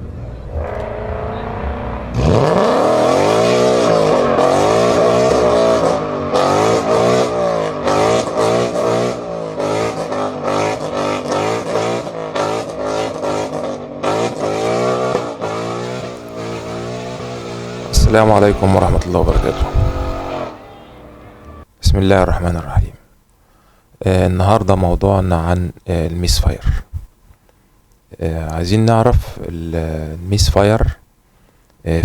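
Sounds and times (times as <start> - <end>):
car engine revving: 0.5 - 9.2, 15.8 - 21.7.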